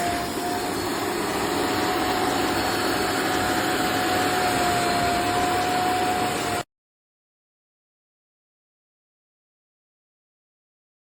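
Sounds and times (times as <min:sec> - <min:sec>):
vacuum cleaner motor whining: 0:00.0 - 0:06.6.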